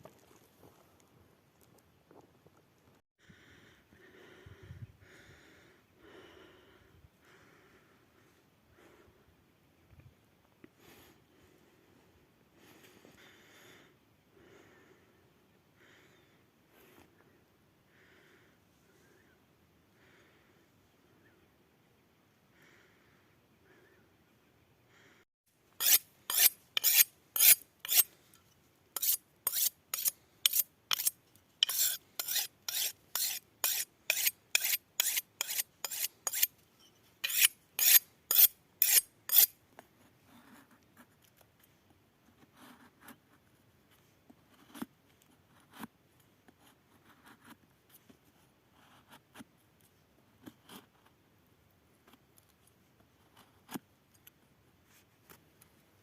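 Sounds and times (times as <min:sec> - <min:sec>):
hand tool rasping strokes: 0:25.8 - 0:28.4, 0:29.0 - 0:36.6, 0:37.2 - 0:39.5.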